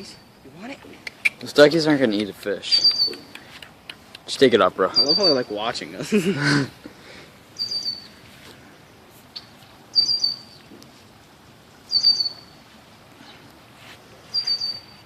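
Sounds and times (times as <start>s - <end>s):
faint outdoor hiss: 0.0s - 15.0s
bird's short high call: 14.3s - 15.0s.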